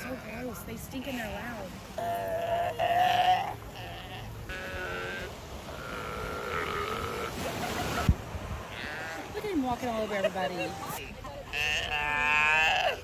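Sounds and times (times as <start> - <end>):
sea lions bleating: 2.0 - 7.5, 8.7 - 13.0.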